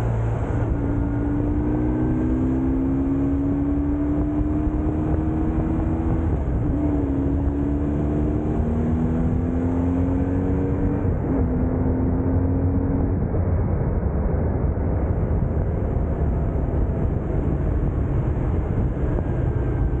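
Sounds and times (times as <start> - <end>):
steady low rumble: 10.6 - 20.0.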